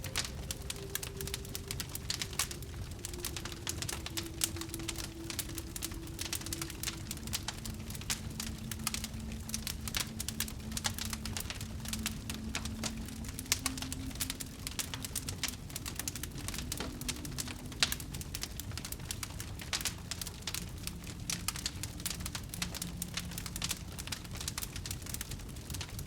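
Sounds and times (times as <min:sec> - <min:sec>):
fire crackling and popping: 0:00.0 - 0:26.0.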